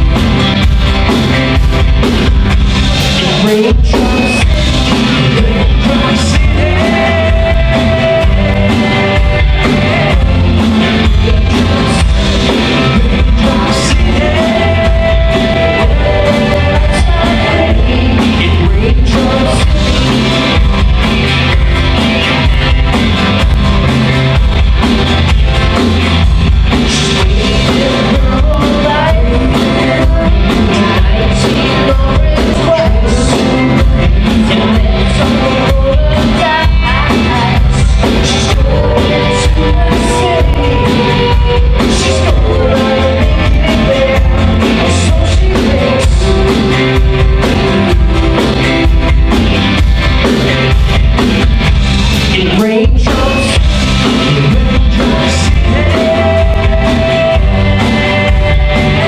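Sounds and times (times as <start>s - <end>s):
rock band playing live: 0.0s - 59.0s
person singing: 2.7s - 21.6s, 26.7s - 49.1s, 52.2s - 59.0s.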